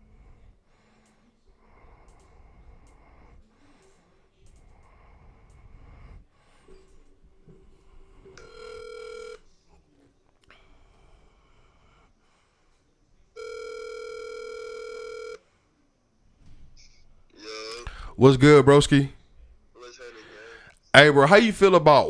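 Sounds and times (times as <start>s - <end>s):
phone ringback tone: 8.4s - 9.4s, 13.4s - 15.4s.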